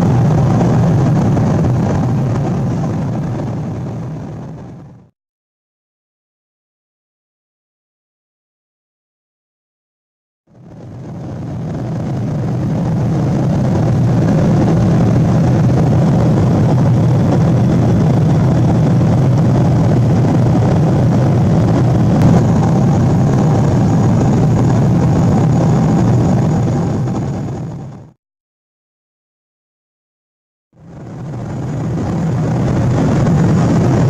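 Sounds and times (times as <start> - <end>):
aircraft cabin engine rumble: 0.0 - 5.1, 10.5 - 28.2, 30.8 - 34.0.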